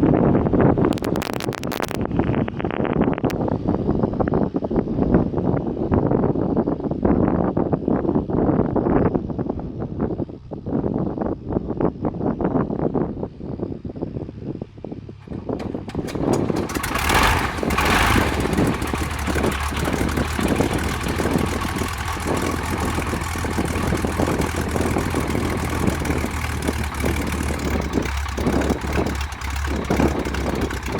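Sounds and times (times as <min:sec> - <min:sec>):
aircraft engine starting and idling: 0:15.0 - 0:30.9.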